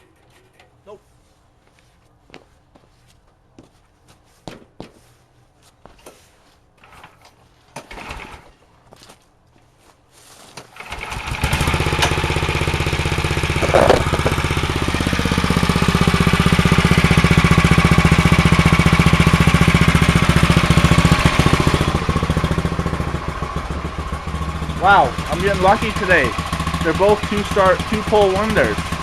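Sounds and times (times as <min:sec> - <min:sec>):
small gasoline engine starting: 0:07.8 - 0:08.5, 0:10.7 - 0:29.0.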